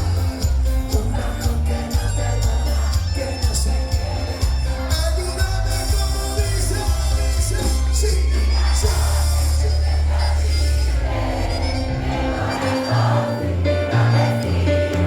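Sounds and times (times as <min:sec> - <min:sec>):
person singing: 0:00.0 - 0:09.8
heavy bass line: 0:00.0 - 0:15.0
live band music: 0:00.0 - 0:15.0.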